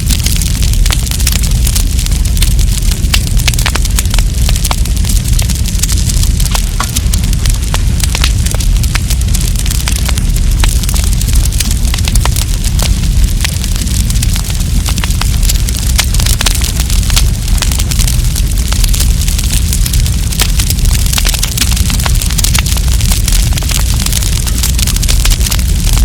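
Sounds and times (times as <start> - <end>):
campfire crackling and popping: 0.0 - 26.0
low rumble: 0.0 - 26.0.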